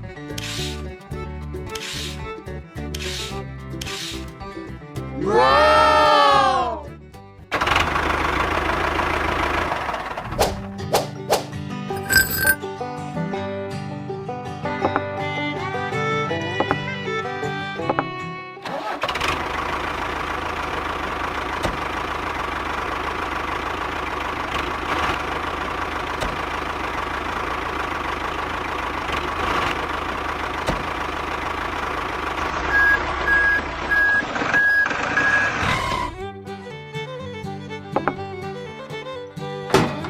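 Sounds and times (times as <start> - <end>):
truck engine running: 7.5 - 10.4, 18.8 - 35.6
reversing alarm beeping: 32.7 - 35.6.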